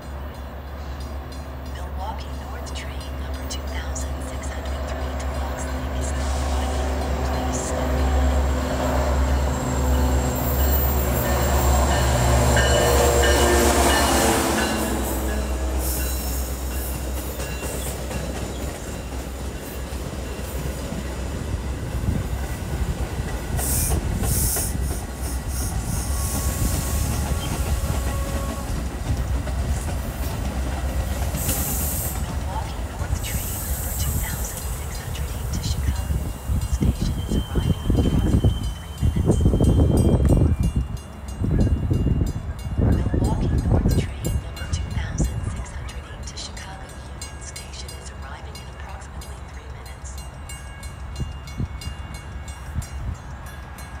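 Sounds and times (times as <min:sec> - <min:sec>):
diesel locomotive engine passing: 0:00.0 - 0:54.0.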